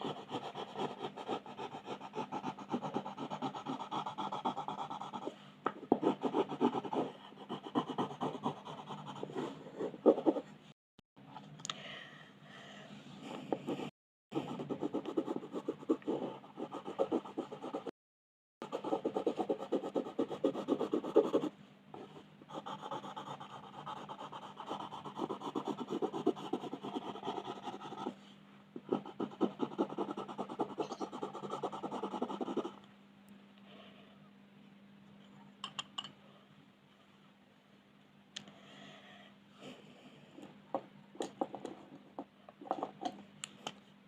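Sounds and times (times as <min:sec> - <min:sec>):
pencil scratching on paper: 0:00.0 - 0:10.5, 0:13.4 - 0:17.9, 0:18.6 - 0:28.2, 0:28.8 - 0:32.8.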